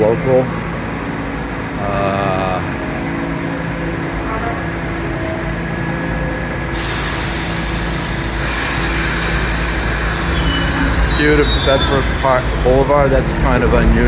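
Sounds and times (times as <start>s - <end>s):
subway train rumble: 0.0s - 14.0s
loud hiss: 6.7s - 13.5s.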